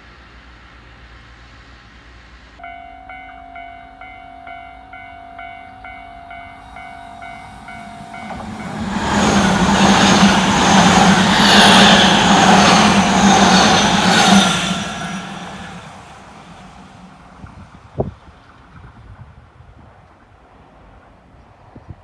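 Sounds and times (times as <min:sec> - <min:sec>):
electric train passing at speed: 0:00.0 - 0:22.0
level crossing warning bell: 0:02.6 - 0:10.3.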